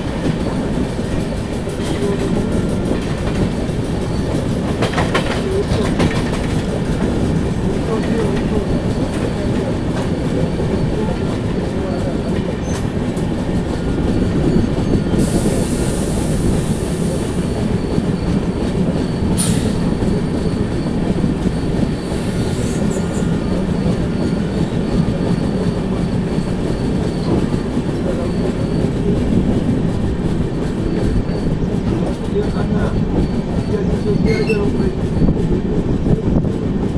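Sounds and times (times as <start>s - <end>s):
train wheels rumbling on track: 0.0s - 36.9s
hiss: 15.2s - 17.7s.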